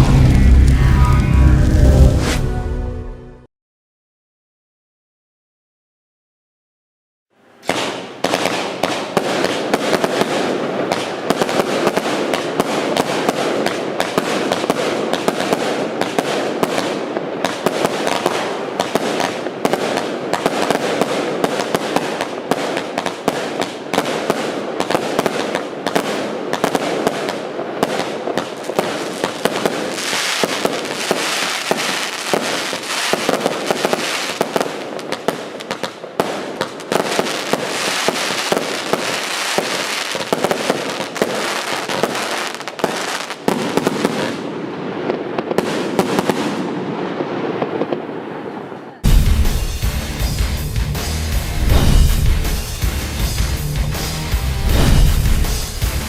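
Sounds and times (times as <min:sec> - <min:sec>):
firecrackers banging and crackling: 0:07.6 - 0:44.5, 0:49.0 - 0:56.0.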